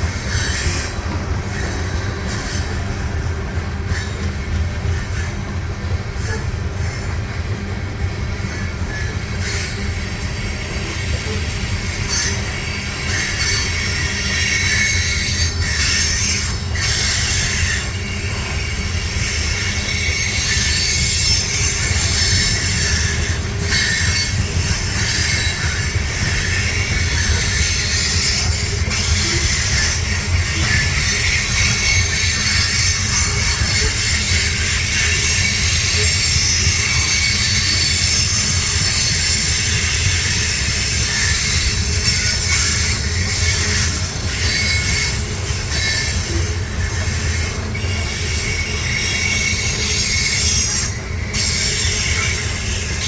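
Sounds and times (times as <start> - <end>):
freight train rumbling past: 0.0 - 53.0
steel wheels squealing on rails: 0.0 - 53.0.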